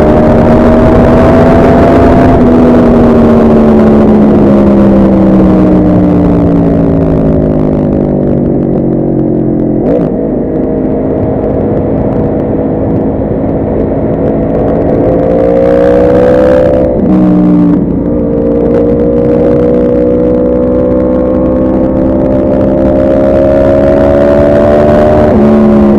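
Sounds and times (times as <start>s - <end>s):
motorcycle engine revving: 0.0s - 25.9s
steady rushing noise: 0.0s - 25.9s.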